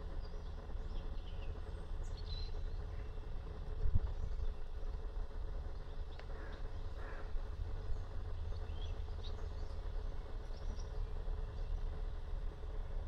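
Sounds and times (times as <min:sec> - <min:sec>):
small birds chirping: 0:00.0 - 0:03.2, 0:07.8 - 0:12.2
low outdoor background rumble: 0:00.0 - 0:13.0.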